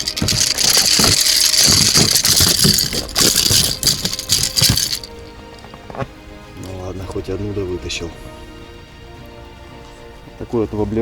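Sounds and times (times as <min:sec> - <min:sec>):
thumps and knocks: 0:00.0 - 0:06.2.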